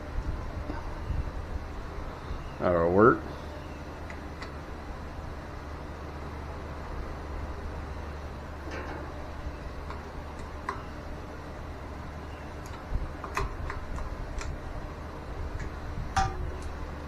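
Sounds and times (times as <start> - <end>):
steady low hum: 0.0 - 17.0
clicks and taps of metal tools: 9.9 - 10.8, 15.6 - 16.8.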